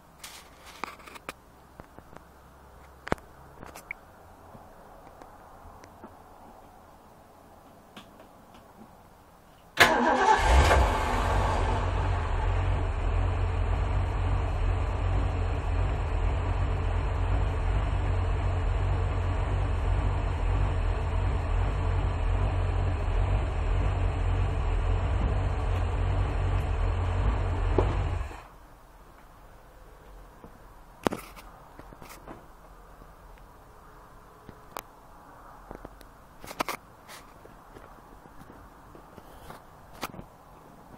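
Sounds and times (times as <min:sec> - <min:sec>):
boat engine starting and idling: 0:09.8 - 0:28.4.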